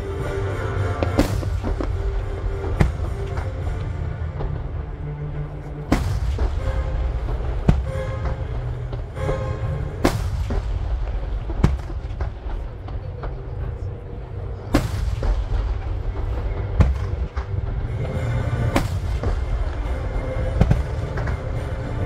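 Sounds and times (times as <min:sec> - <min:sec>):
low rumble of fireworks: 0:00.0 - 0:22.0
firework booms: 0:10.0 - 0:12.6, 0:14.7 - 0:17.4.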